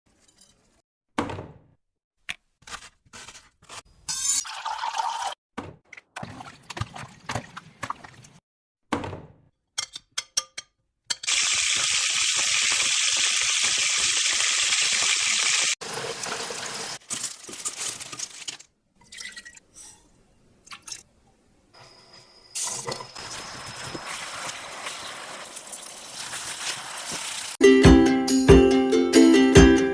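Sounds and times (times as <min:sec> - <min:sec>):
hiss of running water or sizzling: 0:11.3 - 0:17.0, 0:22.6 - 0:27.6.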